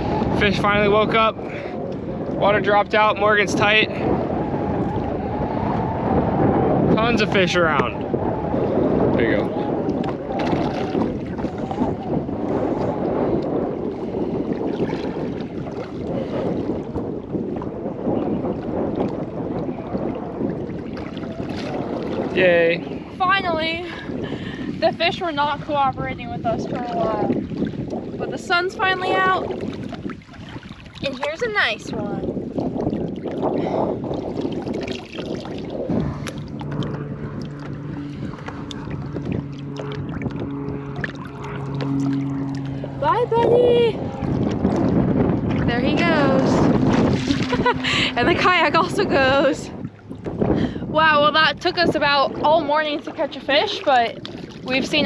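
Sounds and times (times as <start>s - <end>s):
water moving around kayak: 0.0s - 55.0s
wind buffeting microphone: 0.0s - 55.0s
low hum of held tones: 35.6s - 55.0s.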